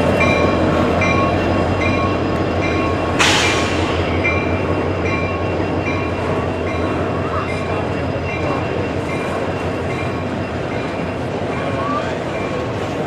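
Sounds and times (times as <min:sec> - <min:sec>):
steel wheels clattering on rail: 0:00.0 - 0:13.0
sudden sharp noise: 0:03.2 - 0:04.3.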